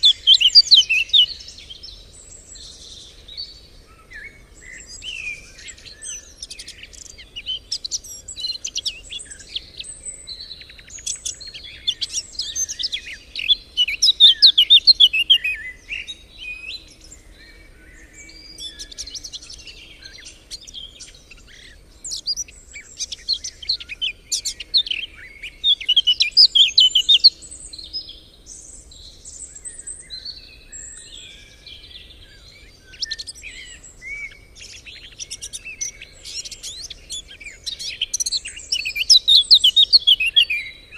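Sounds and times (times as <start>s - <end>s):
songbirds singing and chirping: 0.0s - 40.9s.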